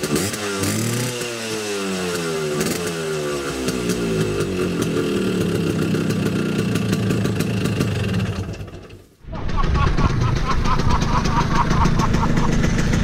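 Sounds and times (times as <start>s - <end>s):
two-stroke scooter engine revving: 0.0s - 9.0s, 9.7s - 13.0s.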